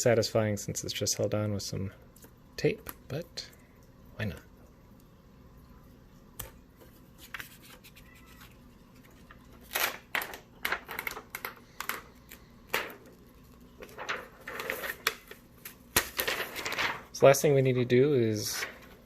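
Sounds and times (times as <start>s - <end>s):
plastic film crackling and scratching: 7.0s - 12.5s, 13.1s - 17.2s.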